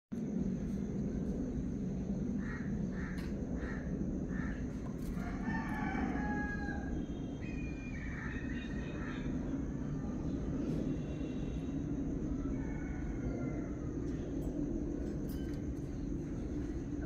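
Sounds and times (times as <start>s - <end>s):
steady low rumble: 0.1s - 17.0s
bird calls: 6.6s - 9.8s.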